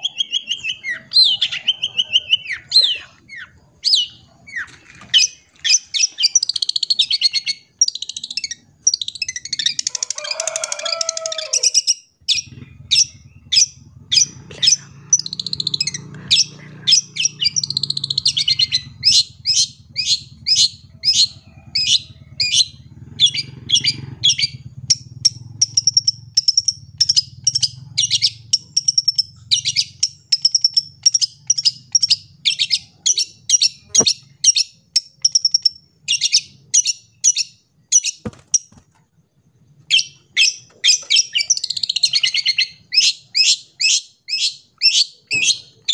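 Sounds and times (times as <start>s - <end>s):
bird singing chirps and trills: 0.0s - 45.9s
faint low hum: 12.2s - 34.4s.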